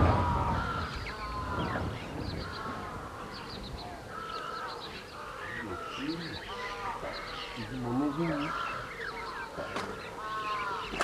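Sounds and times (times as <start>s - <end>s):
birds calling: 0.0s - 11.0s.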